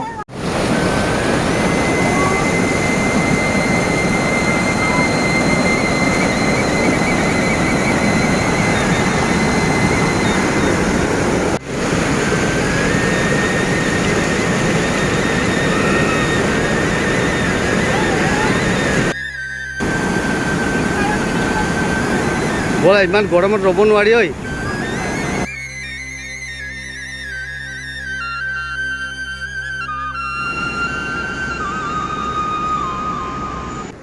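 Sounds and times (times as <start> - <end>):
waterfall rushing: 0.3 - 19.1, 19.8 - 25.5, 30.4 - 33.9.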